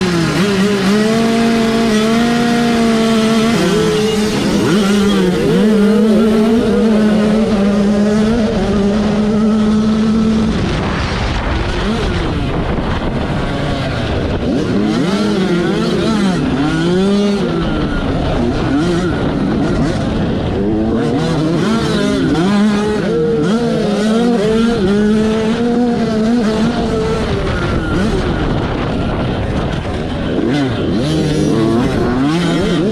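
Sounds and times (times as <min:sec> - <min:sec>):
motocross bike engine revving: 0:00.0 - 0:32.9
other motorbike engines: 0:00.0 - 0:32.9.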